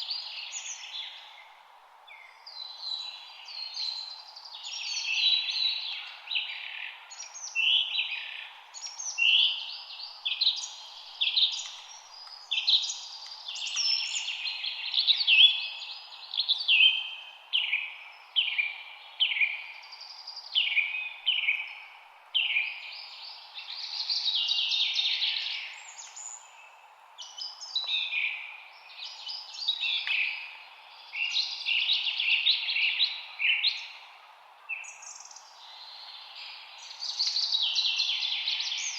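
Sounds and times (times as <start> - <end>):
faint background hiss: 0.0 - 38.9
songbirds chirping and singing: 0.0 - 38.9.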